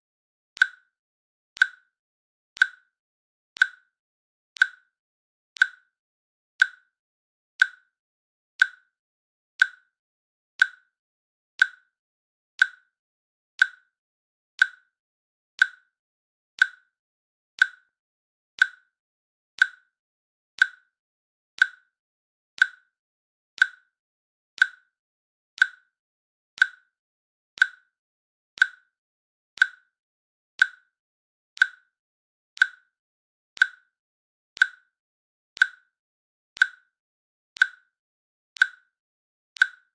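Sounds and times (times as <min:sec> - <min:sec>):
timer clicking: 0:00.6 - 0:01.0, 0:01.6 - 0:01.9, 0:02.6 - 0:02.9, 0:03.6 - 0:04.0, 0:04.6 - 0:05.0, 0:05.6 - 0:06.0, 0:06.6 - 0:07.0, 0:07.6 - 0:08.0, 0:08.6 - 0:09.0, 0:09.6 - 0:10.0, 0:10.6 - 0:11.0, 0:11.6 - 0:12.0, 0:12.6 - 0:13.0, 0:13.6 - 0:14.0, 0:14.6 - 0:15.0, 0:15.6 - 0:16.0, 0:16.6 - 0:17.0, 0:17.6 - 0:18.0, 0:18.6 - 0:19.0, 0:19.6 - 0:20.0, 0:20.6 - 0:21.0, 0:21.6 - 0:22.0, 0:22.6 - 0:23.0, 0:23.6 - 0:24.0, 0:24.6 - 0:25.0, 0:25.6 - 0:26.0, 0:26.6 - 0:27.0, 0:27.6 - 0:28.0, 0:28.6 - 0:29.0, 0:29.6 - 0:30.0, 0:30.6 - 0:31.0, 0:31.6 - 0:32.0, 0:32.6 - 0:33.0, 0:33.6 - 0:34.0, 0:34.6 - 0:35.0, 0:35.6 - 0:36.0, 0:36.6 - 0:37.0, 0:37.6 - 0:38.0, 0:38.6 - 0:39.0, 0:39.6 - 0:39.9.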